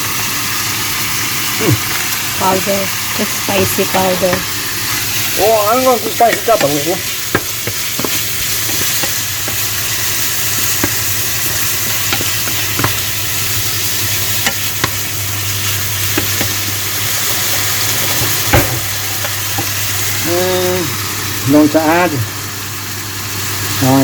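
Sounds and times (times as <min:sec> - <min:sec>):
chicken frying in oil: 0:00.0 - 0:24.0
utensil clicking against pan: 0:03.8 - 0:16.9.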